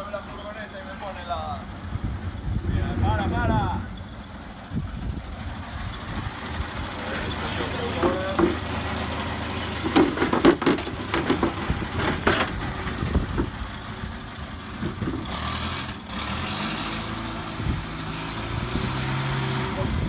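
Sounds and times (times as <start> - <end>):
van engine running slowly: 0.0 - 20.0
knocks and clatter: 6.9 - 15.9.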